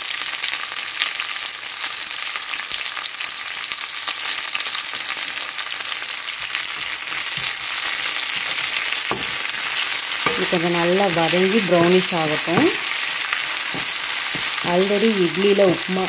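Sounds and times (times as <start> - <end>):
onions sizzling in hot oil: 0.0 - 16.0
wooden spatula scraping: 6.6 - 15.9.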